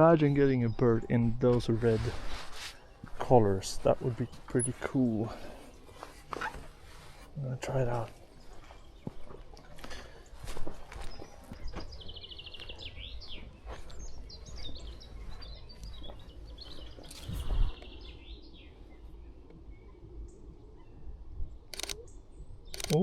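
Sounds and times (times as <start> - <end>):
songbirds singing and chirping: 0.0 - 23.0
wind rumble on microphone: 14.2 - 18.7.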